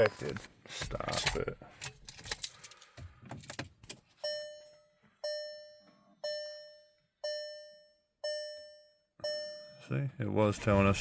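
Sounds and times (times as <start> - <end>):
dashboard warning chime: 4.2 - 10.0.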